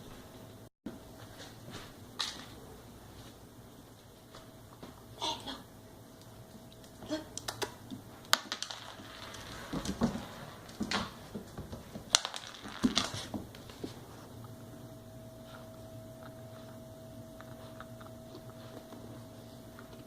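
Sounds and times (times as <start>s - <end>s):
ice clattering on hard floor: 8.3s - 13.6s.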